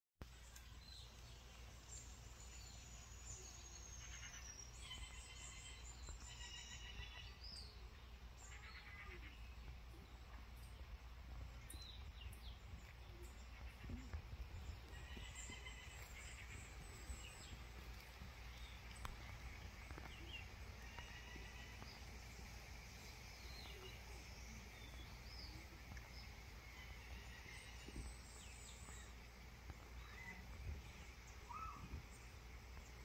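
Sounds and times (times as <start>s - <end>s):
birds chirping and trilling: 0.3s - 33.0s.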